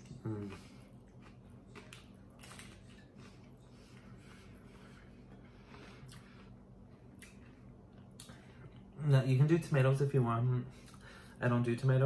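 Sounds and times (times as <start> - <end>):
chewing crunchy taco: 0.0 - 9.0
low steady hum: 0.0 - 12.0.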